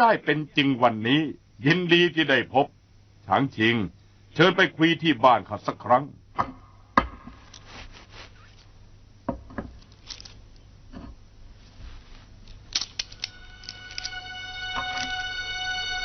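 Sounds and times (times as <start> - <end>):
low hum: 9.9 - 16.0
background music with held notes: 13.0 - 16.0.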